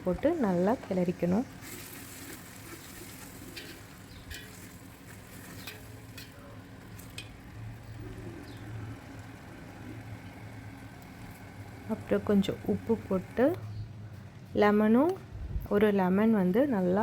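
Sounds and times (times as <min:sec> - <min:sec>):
low steady hum: 0:00.0 - 0:17.0
sauce sizzling in oil: 0:01.6 - 0:06.1.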